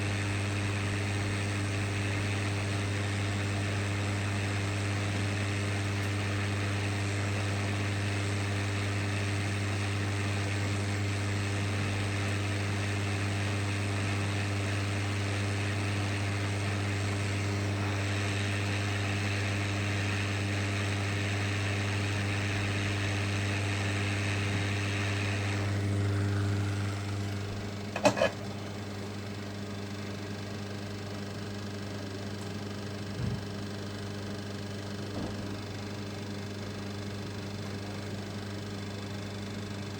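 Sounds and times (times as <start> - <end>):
steady electrical hum: 25.0 - 32.4.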